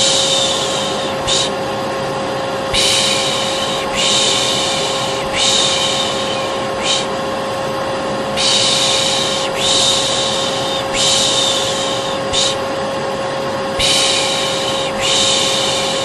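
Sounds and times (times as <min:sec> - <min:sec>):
person shushing: 0:00.0 - 0:01.6, 0:02.7 - 0:07.2, 0:08.4 - 0:12.7, 0:13.8 - 0:16.0
vacuum cleaner humming: 0:00.0 - 0:16.0.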